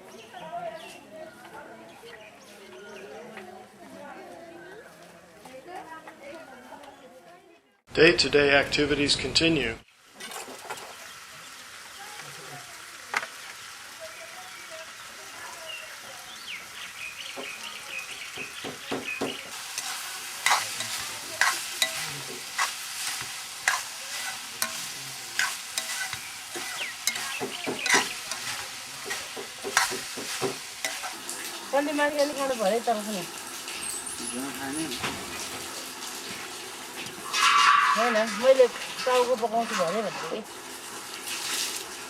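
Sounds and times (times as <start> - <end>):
food sizzling in a pan: 9.8 - 42.0
utensil scraping a pan: 19.5 - 31.6, 37.0 - 40.4.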